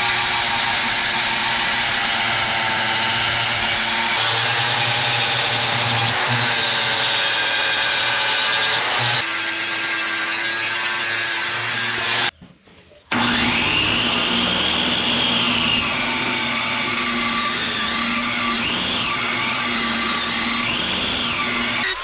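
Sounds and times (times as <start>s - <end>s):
power tool whining: 0.0s - 12.3s, 13.1s - 22.0s.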